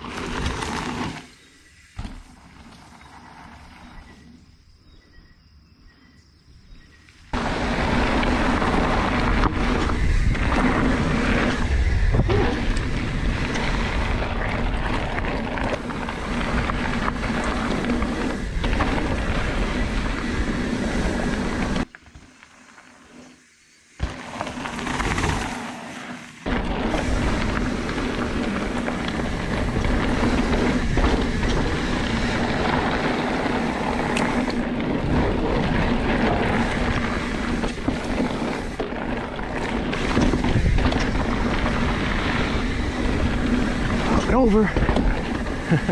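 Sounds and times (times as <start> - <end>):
tyres rumbling on dirt: 0.0 - 4.6, 7.3 - 23.2, 24.0 - 45.9
wind rushing over microphone: 7.3 - 21.9, 26.4 - 45.9.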